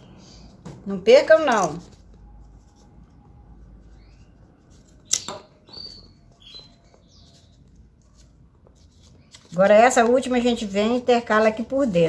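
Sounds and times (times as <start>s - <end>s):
high bird chirps: 5.0s - 7.6s.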